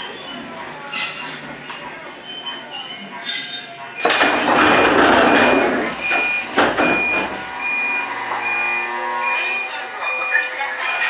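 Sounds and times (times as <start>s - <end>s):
knocks: 4.0s - 8.8s
electronic beep: 5.2s - 10.6s.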